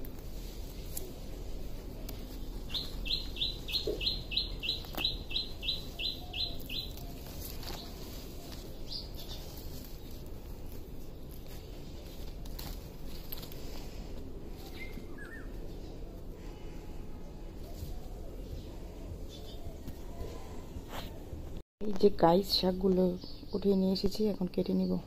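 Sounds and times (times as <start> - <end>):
leaves rustling and clicking: 0.0 - 21.2
bird chirping rapidly: 2.6 - 7.9.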